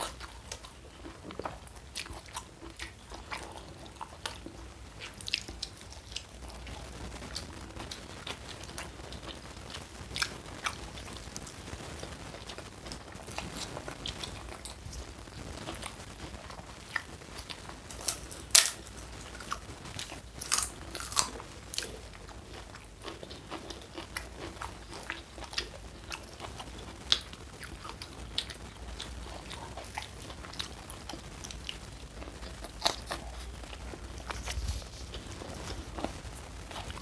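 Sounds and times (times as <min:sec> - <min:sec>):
crunchy bites and chewing: 0:15.7 - 0:37.0.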